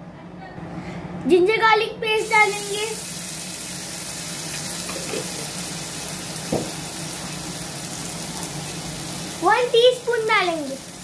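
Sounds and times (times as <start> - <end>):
paste sizzling in hot oil: 2.2 - 11.0
soft knock: 6.5 - 6.8.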